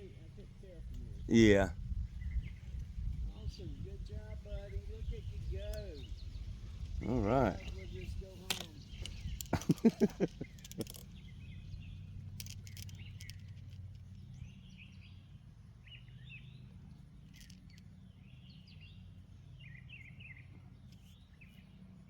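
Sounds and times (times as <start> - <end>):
low outdoor rumble: 0.0 - 22.0
small birds chirping: 0.0 - 22.0
faint clicks: 8.4 - 11.3, 12.2 - 14.3.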